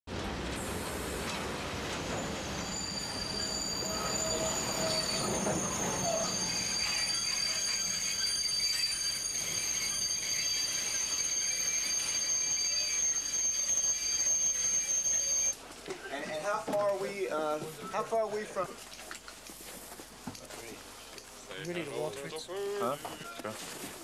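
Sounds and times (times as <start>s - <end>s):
freight train rumble: 0.1s - 15.3s
high-pitched metallic squeal: 1.2s - 15.6s.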